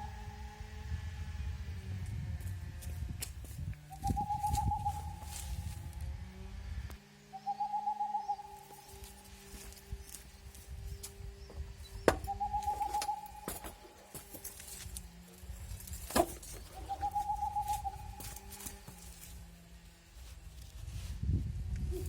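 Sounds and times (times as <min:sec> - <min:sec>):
bird warbling call: 0:03.9 - 0:05.6, 0:07.3 - 0:09.1, 0:12.0 - 0:13.9, 0:16.6 - 0:18.5.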